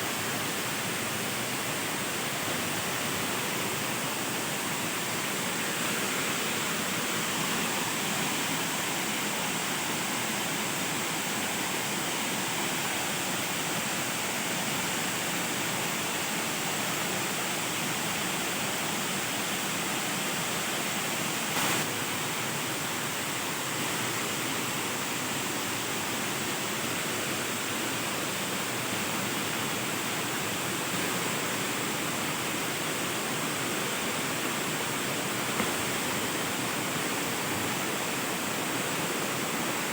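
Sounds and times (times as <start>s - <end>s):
waterfall rushing: 21.4s - 24.1s.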